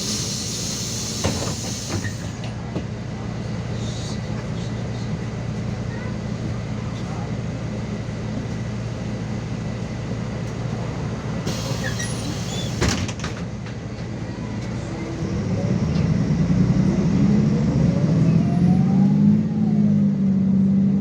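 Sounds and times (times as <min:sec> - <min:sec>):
brief air hiss: 0:00.0 - 0:02.4, 0:11.5 - 0:12.9
bus diesel engine: 0:00.0 - 0:21.0.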